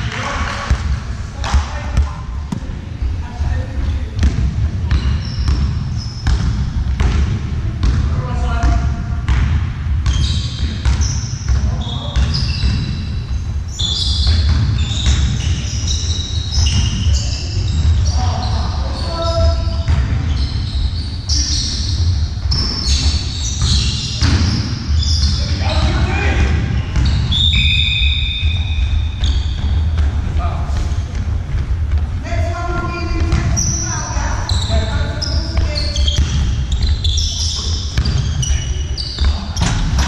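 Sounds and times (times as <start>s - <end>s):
ball bouncing: 0.0s - 2.8s, 4.1s - 18.2s, 19.4s - 20.7s, 22.0s - 40.0s
shoes squeaking on floor: 4.8s - 6.4s, 10.1s - 31.4s, 32.4s - 40.0s
deep rumble of hall: 24.6s - 40.0s.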